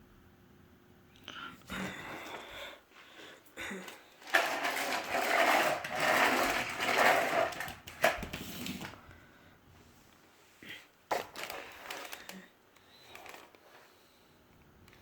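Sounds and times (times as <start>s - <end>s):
vacuum cleaner running: 4.2s - 9.0s.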